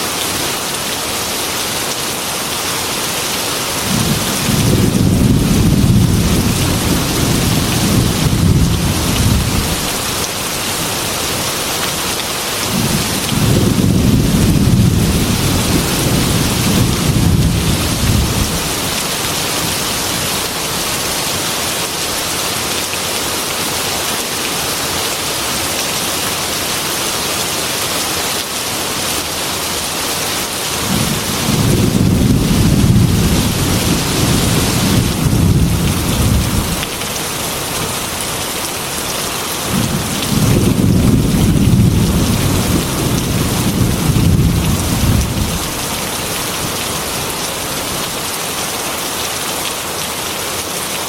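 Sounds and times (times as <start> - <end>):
heavy rain on window glass: 0.1 - 51.0
thunder rumbling: 3.9 - 10.0, 12.7 - 19.0, 30.8 - 37.0, 39.7 - 45.9.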